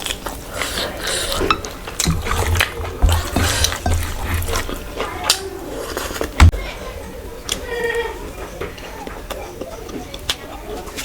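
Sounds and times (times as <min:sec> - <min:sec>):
plate and utensils clinking: 0:00.6 - 0:06.6
low thuds: 0:01.5 - 0:06.6.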